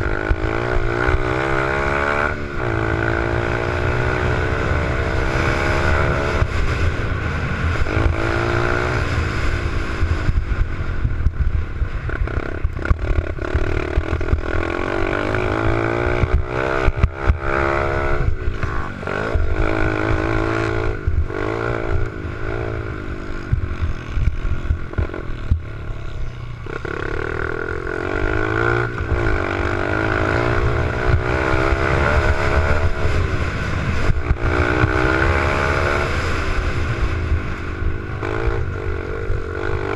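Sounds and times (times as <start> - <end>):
small motorbike engine revving: 12.1 - 39.9.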